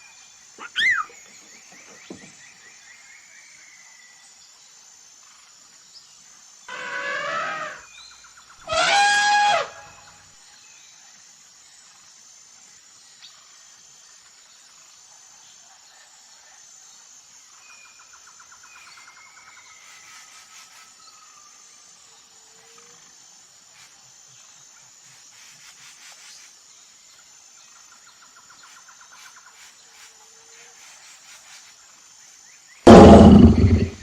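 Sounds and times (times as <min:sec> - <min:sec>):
high insect drone: 0:00.0 - 0:34.0
rapid bird trills: 0:00.6 - 0:02.3
bird calls: 0:00.6 - 0:02.7.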